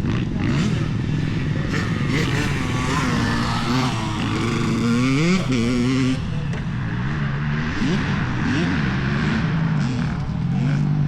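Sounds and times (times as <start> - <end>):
dirt bike engines: 0.0 - 11.0
dirt bike revving: 0.0 - 11.0.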